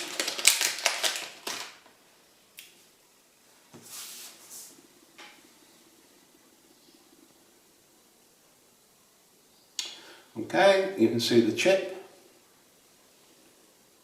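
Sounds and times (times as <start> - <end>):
plastic packaging clicks: 0.0 - 1.9
plastic packaging crinkle: 0.0 - 2.0.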